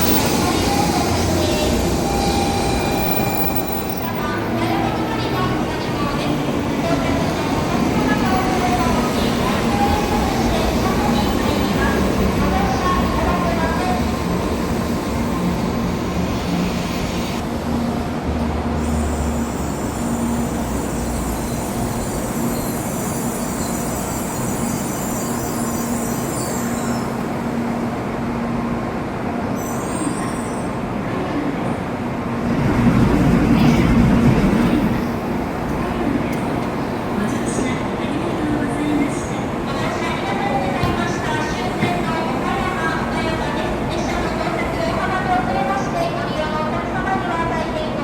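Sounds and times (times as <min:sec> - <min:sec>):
high-pitched train squeal: 0:00.0 - 0:04.2, 0:18.8 - 0:27.2, 0:29.6 - 0:30.8
train running noise: 0:00.0 - 0:48.0.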